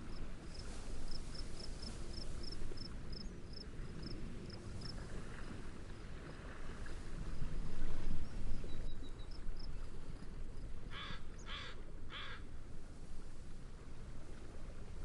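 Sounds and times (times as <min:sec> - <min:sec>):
wind and waves: 0:00.0 - 0:15.0
bird cawing: 0:10.9 - 0:12.4.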